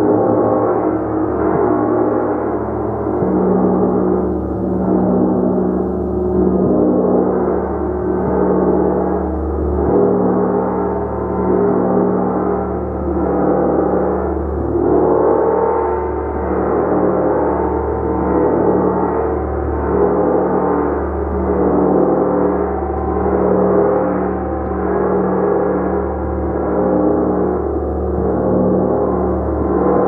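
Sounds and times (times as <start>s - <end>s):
gong sustained tones: 0.0s - 30.0s.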